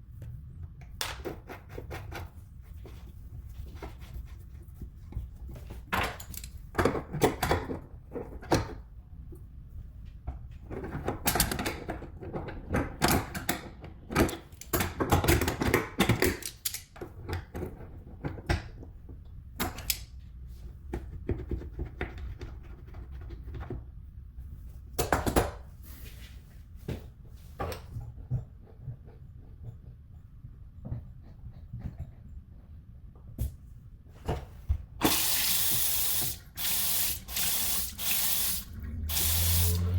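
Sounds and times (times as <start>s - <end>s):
small hard parts clicking and clacking: 11.0s - 17.7s.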